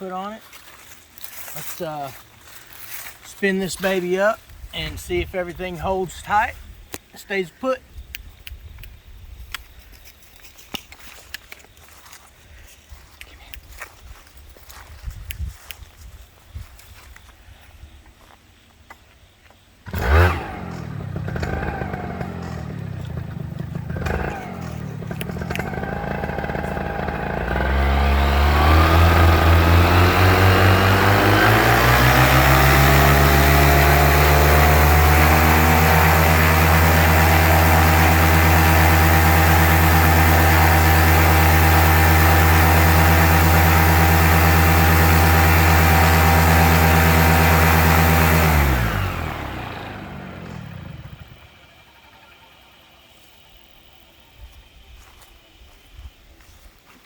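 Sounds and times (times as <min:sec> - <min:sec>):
paramotor engine and propeller: 0:19.8 - 0:54.0.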